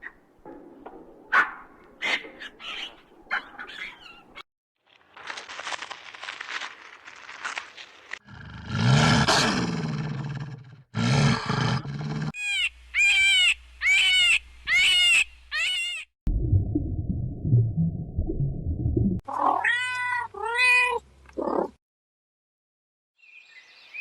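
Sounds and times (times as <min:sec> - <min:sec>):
high arching animal calls: 0:01.3 - 0:04.4, 0:11.3 - 0:16.1
low animal roar: 0:08.2 - 0:12.4.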